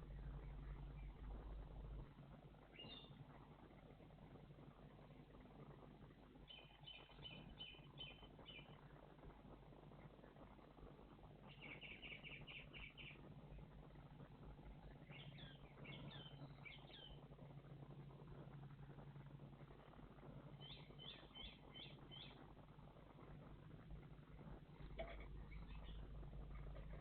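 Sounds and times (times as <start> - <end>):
faint low hum: 0.0 - 27.0
songbirds calling: 2.7 - 3.2, 6.5 - 8.8, 11.4 - 13.6, 14.7 - 17.2, 20.6 - 22.4, 24.8 - 27.0.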